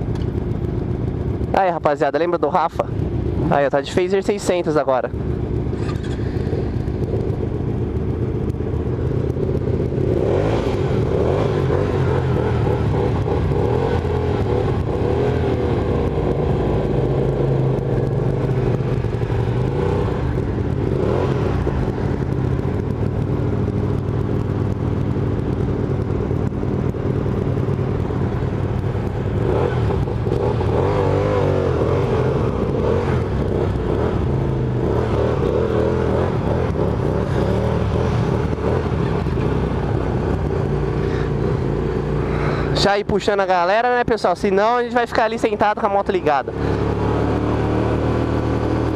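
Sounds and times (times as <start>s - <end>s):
motorcycle engines idling and revving: 0.0s - 48.9s.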